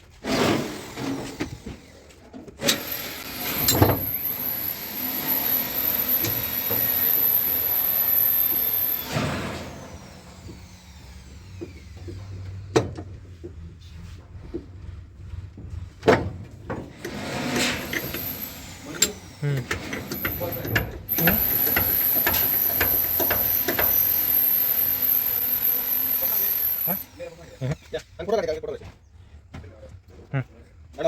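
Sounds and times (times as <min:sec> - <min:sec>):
electric power tool whining: 0:00.6 - 0:13.0, 0:17.0 - 0:27.8.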